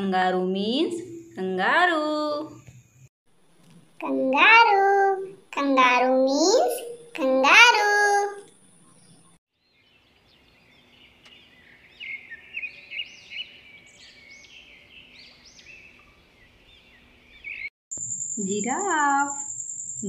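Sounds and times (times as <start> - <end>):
small birds chirping: 4.0 - 17.7.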